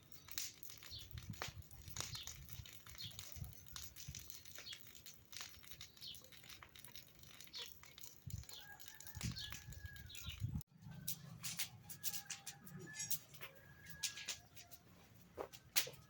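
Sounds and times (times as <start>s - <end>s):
birds chirping: 0.0s - 11.3s.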